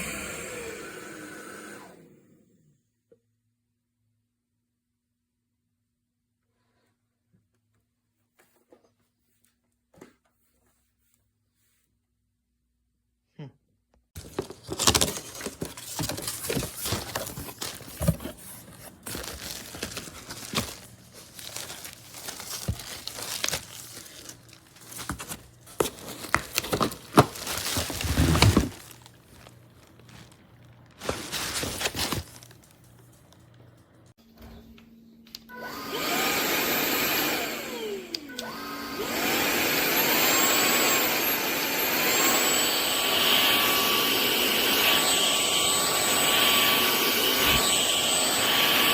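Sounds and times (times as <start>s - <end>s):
stick vacuum motor whining: 0.0s - 2.6s, 14.2s - 30.0s, 35.5s - 48.9s.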